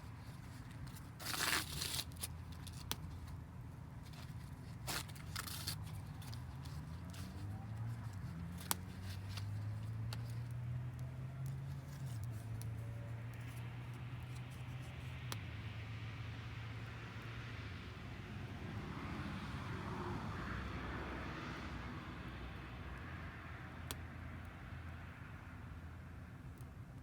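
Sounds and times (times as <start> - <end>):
material tearing by hand: 0.4 - 3.1, 4.2 - 10.5.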